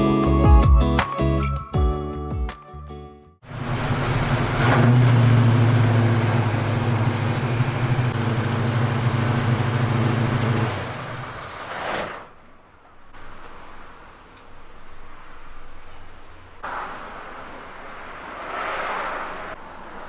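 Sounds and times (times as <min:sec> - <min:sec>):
motorcycle engine running: 0:03.5 - 0:11.3.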